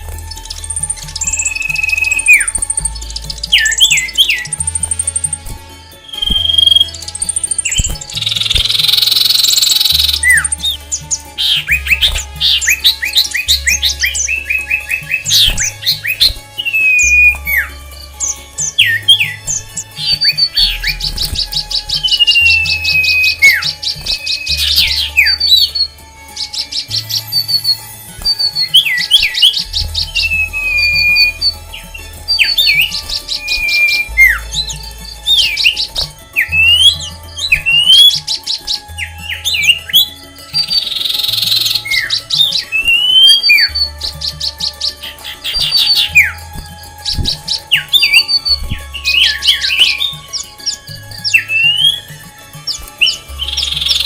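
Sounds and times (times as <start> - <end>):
background music with bass: 0.0 - 54.0
long falling bird whistle: 0.0 - 54.0
rapid high bird chirps: 0.0 - 54.0
short down-slurred whistled calls: 0.0 - 54.0.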